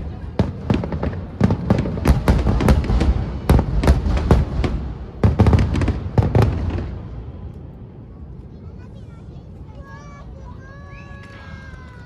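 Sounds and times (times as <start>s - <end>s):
fireworks bangs: 0.0s - 7.5s.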